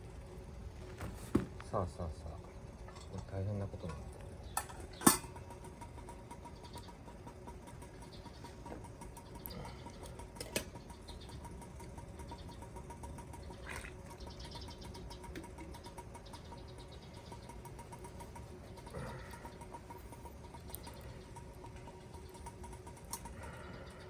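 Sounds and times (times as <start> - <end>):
campfire crackling: 5.2 - 24.0.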